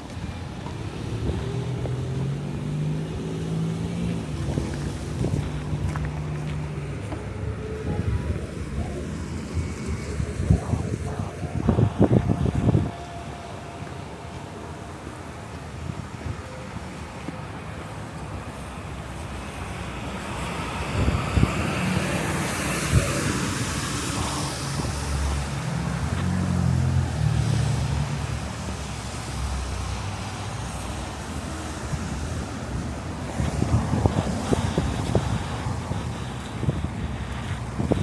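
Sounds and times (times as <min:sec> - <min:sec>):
wind buffeting microphone: 0:00.0 - 0:27.6, 0:28.2 - 0:38.0
motor vehicle passing: 0:00.9 - 0:12.9.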